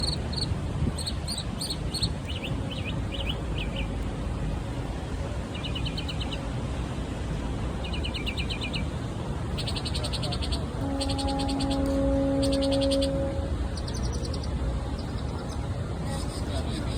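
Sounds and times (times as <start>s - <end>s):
mockingbird singing: 0.0s - 3.9s, 7.8s - 8.9s, 9.6s - 13.2s.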